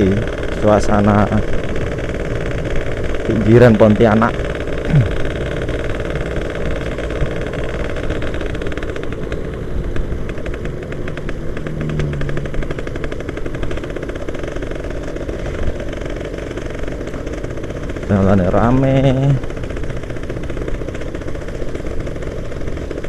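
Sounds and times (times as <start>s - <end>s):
road and wind noise: 0.0s - 23.0s
two-stroke motorcycle engine buzzing: 0.0s - 23.0s.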